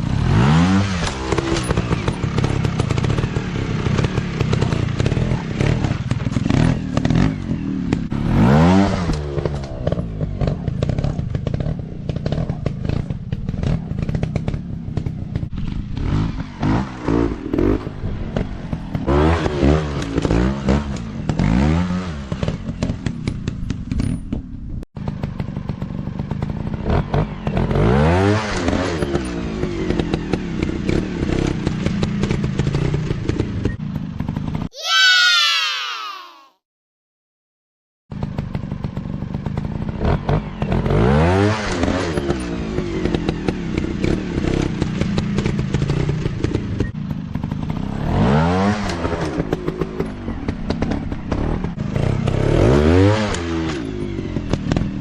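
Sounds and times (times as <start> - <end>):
dirt bike engines revving: 0.0 - 22.9.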